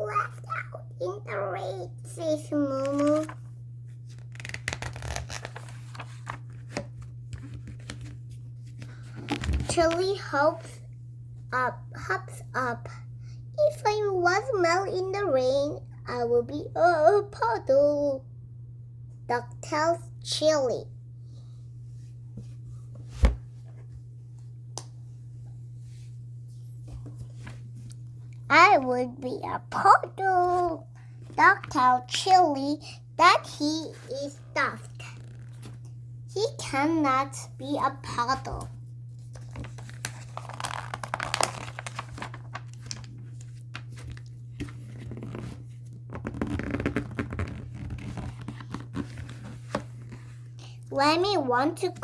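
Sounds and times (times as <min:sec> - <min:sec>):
steady low hum: 0:00.0 - 0:52.0
paper rustling and crinkling: 0:02.8 - 0:09.8, 0:39.2 - 0:50.4.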